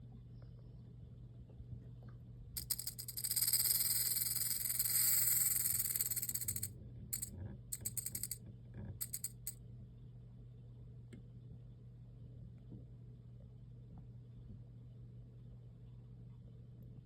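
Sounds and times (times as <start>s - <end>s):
rattlesnake rattling: 2.6s - 8.4s, 9.0s - 9.5s.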